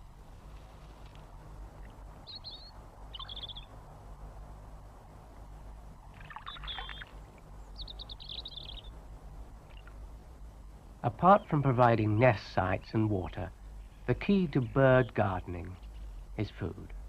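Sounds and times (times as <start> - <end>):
faint low hum: 0.0 - 17.0
wren trilling: 2.2 - 3.8, 6.2 - 9.0.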